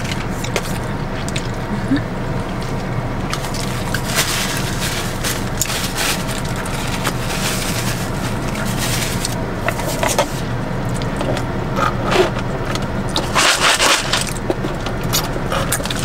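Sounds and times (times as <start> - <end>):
car engine idling: 0.0 - 16.0
person chewing food: 2.4 - 7.4
paper wrapper crackling: 3.3 - 10.4.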